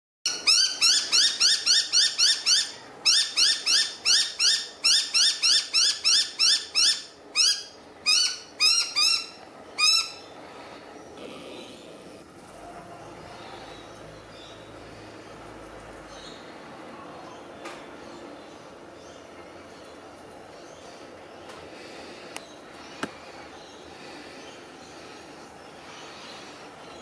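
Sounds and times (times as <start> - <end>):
bird calling harsh notes: 0.3 - 10.4.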